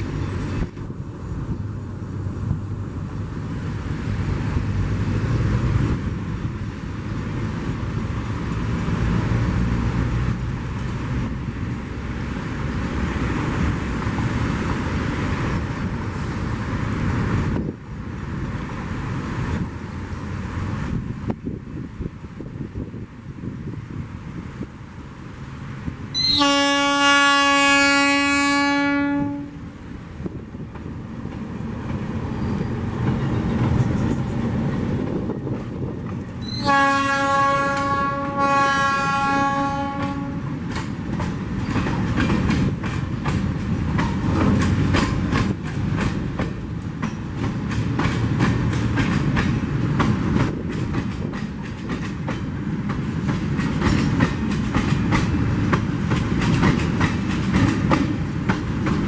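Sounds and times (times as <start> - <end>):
locomotive engine rumble: 0.0 - 27.0, 28.6 - 59.0
locomotive horn: 26.2 - 29.6, 36.4 - 40.6
wheels clicking over rail joints: 39.6 - 59.0.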